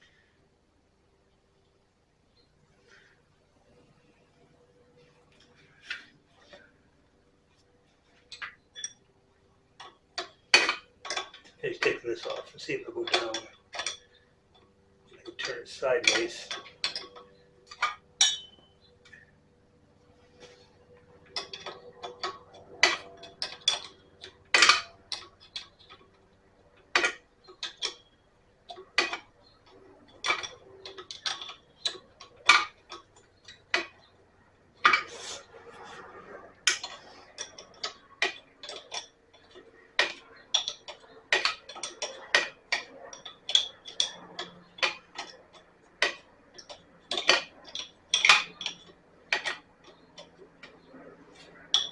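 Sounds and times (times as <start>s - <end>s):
metal parts clinking and knocking: 8.2s - 9.1s, 9.8s - 19.3s, 20.5s - 35.1s, 36.3s - 51.9s.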